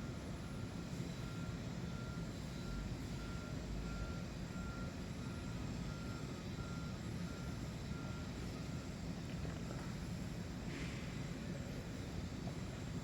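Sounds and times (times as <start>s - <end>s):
reversing alarm beeping: 0.6s - 8.8s.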